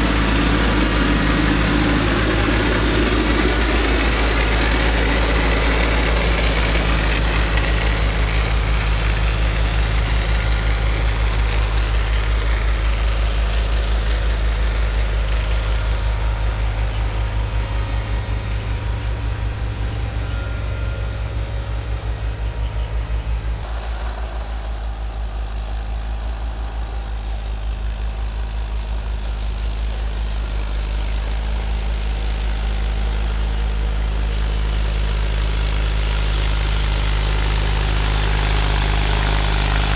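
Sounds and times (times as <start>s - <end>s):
tractor engine drone: 0.0s - 39.9s.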